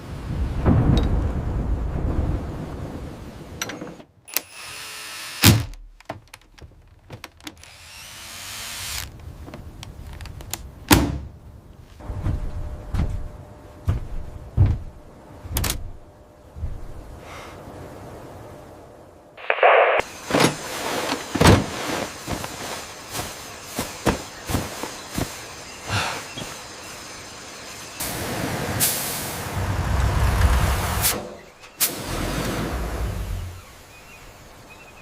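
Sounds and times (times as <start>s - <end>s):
low machinery rumble: 11.4s - 19.8s
heavy thunks and knocks: 12.1s - 16.0s, 20.3s - 22.6s, 23.8s - 25.3s
short hiss: 19.4s - 20.1s.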